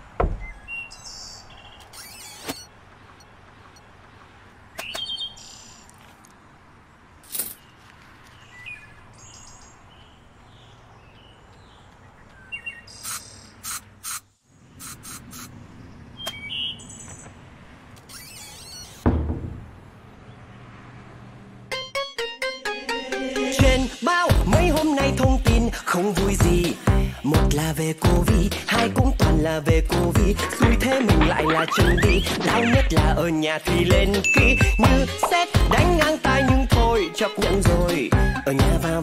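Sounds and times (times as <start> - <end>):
birds chirping: 0.0 - 6.9, 7.6 - 19.1, 29.8 - 37.1
loud thump: 0.2 - 0.5, 19.0 - 19.9.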